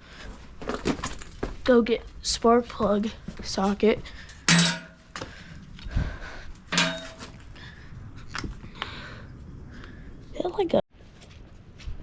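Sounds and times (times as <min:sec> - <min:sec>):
sharp metallic clink: 0:04.5 - 0:05.1, 0:06.7 - 0:07.3.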